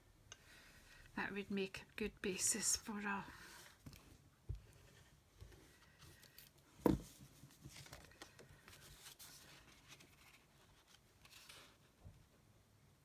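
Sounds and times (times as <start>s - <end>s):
paper rustling: 5.9s - 12.0s.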